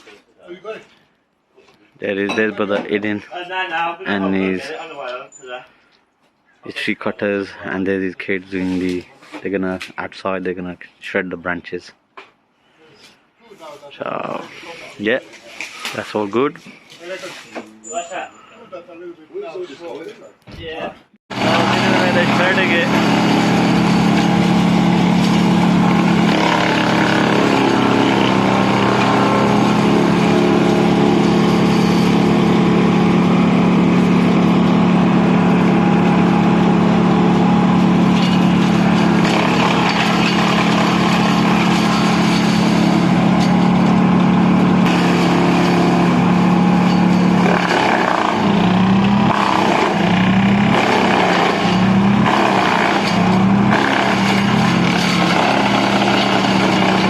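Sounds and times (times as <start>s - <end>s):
wood chipper shredding branches: 21.3s - 57.0s.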